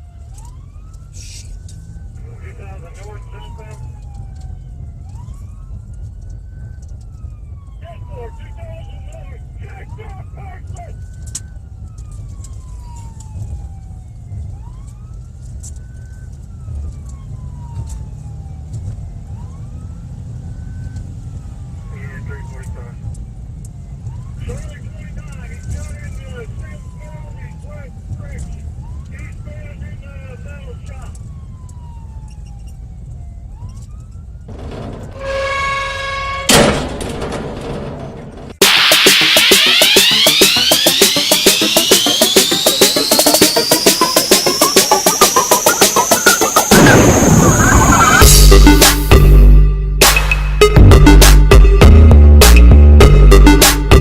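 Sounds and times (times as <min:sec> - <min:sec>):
police siren wailing: 0:00.0 - 0:37.4, 0:38.5 - 0:54.0
loud bang: 0:34.5 - 0:41.2, 0:46.6 - 0:49.0
loud held tone: 0:35.1 - 0:36.7, 0:38.6 - 0:54.0.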